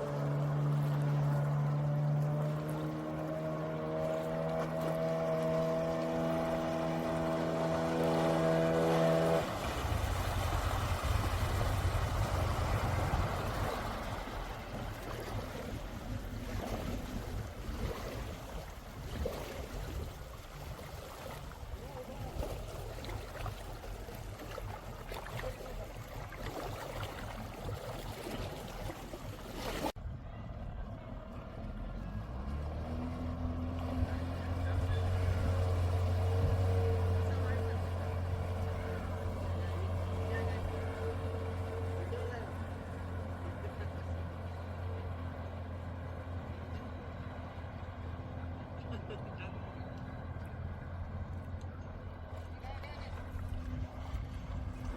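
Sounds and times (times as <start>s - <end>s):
water splashing: 0.0s - 30.0s, 31.2s - 54.9s
jet ski engine running: 0.0s - 54.9s
low rumble: 4.0s - 26.3s, 29.9s - 54.9s
wind noise: 9.5s - 20.1s.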